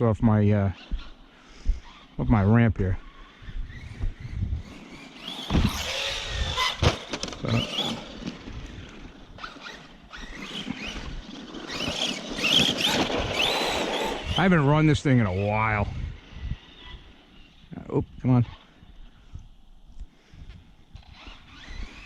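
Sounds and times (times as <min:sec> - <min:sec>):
rc truck motor whine: 0:01.8 - 0:02.2, 0:03.0 - 0:17.7, 0:20.9 - 0:22.0.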